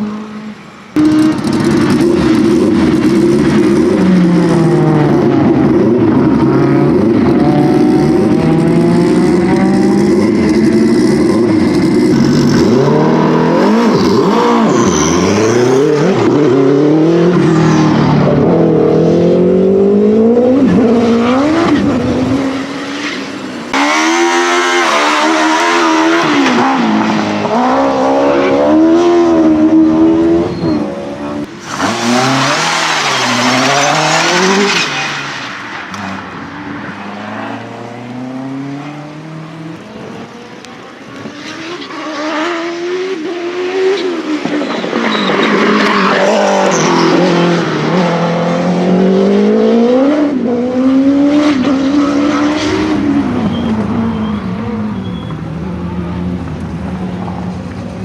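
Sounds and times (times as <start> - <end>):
car engine revving up and down: 1.0 - 54.8
racing car engine revving: 31.1 - 44.5.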